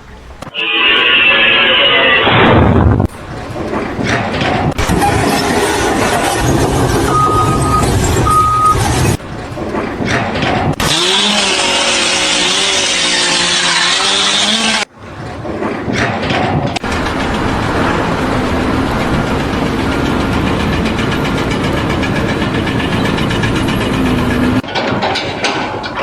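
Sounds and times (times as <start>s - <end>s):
machine engine running: 2.8s - 12.7s, 16.7s - 24.7s.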